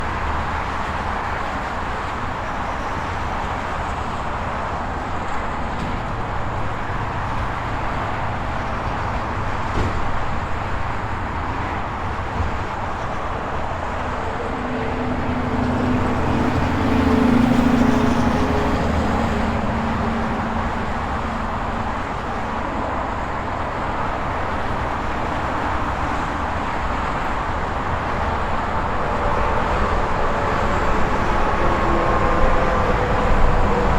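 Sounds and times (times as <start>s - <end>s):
highway traffic noise: 0.0s - 33.9s
heavy vehicle engine drone passing: 10.6s - 33.9s.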